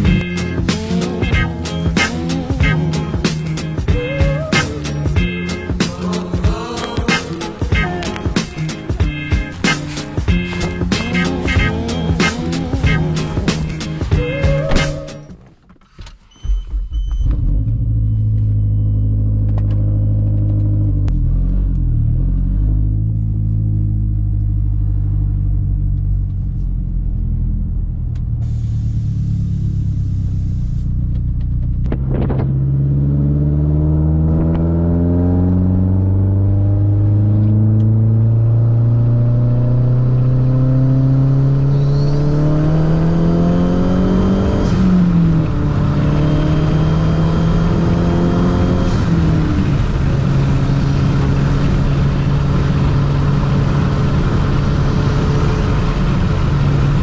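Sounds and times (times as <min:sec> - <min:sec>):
car engine accelerating: 0:00.0 - 0:15.4, 0:17.1 - 0:57.0.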